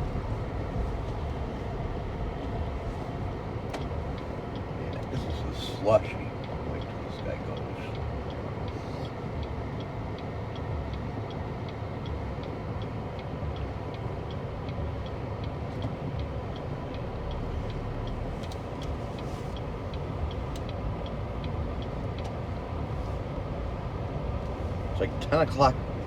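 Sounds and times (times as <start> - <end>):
car idling hum: 0.0 - 26.0
car turn signal ticking: 0.0 - 26.0.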